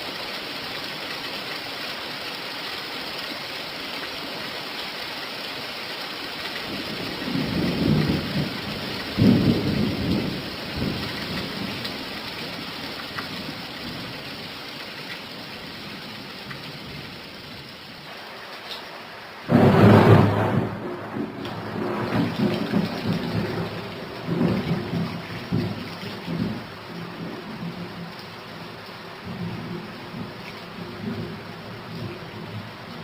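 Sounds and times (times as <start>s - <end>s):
rain hissing: 0.0s - 33.0s
thunder rumbling: 6.7s - 12.0s, 19.4s - 32.8s.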